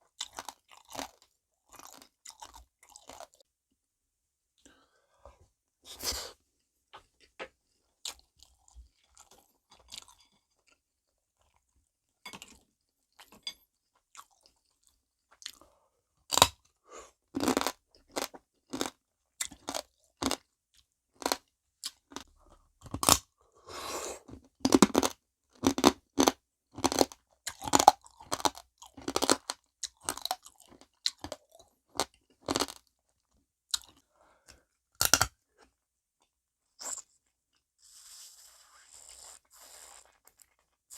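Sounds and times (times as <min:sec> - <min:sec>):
chewing and crunching crab shells: 0:00.1 - 0:03.5, 0:08.0 - 0:23.4, 0:24.3 - 0:36.4.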